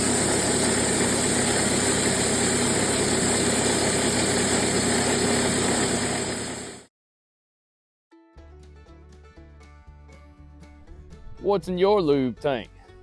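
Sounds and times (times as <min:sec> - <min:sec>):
band sawmill cutting log: 0:00.0 - 0:06.7.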